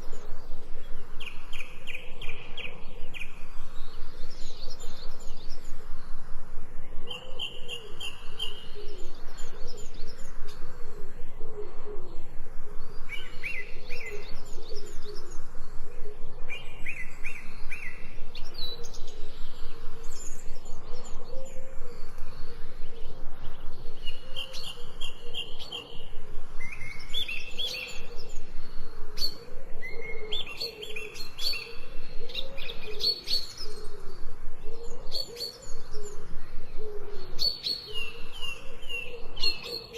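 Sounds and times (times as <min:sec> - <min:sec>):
birds trilled chirping: 0:00.0 - 0:39.9.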